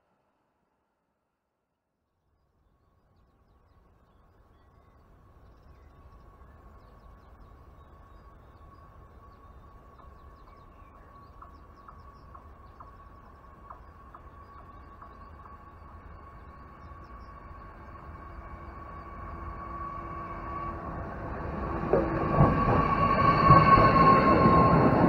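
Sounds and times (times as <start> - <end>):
distant train rumble and hiss: 2.4 - 25.0
high ringing tone: 22.6 - 25.0.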